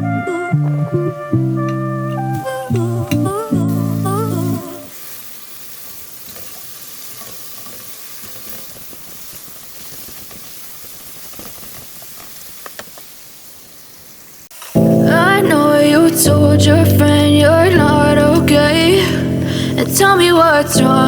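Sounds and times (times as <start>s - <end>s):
sharp pops: 1.6s - 3.6s
food sizzling in a pan: 2.2s - 21.0s.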